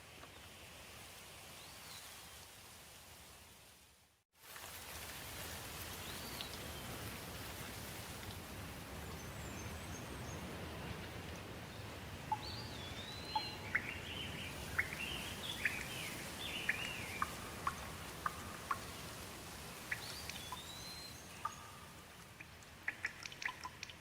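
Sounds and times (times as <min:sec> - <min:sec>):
light rain falling: 0:00.0 - 0:24.0
birds chirping and whistling: 0:12.4 - 0:17.4, 0:19.9 - 0:21.8.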